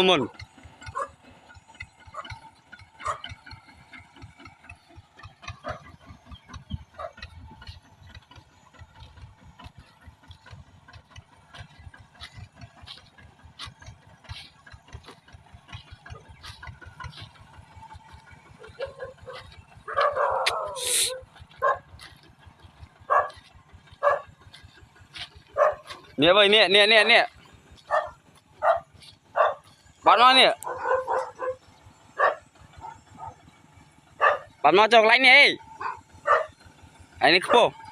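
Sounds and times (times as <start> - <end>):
tractor engine idling: 0.0 - 37.9
dog barking: 0.9 - 1.2, 3.0 - 3.3, 5.6 - 5.9, 6.9 - 7.3, 18.6 - 22.0, 23.1 - 24.4, 25.6 - 26.0, 27.9 - 29.7, 30.6 - 31.6, 32.2 - 33.4, 34.2 - 34.6, 35.8 - 36.6.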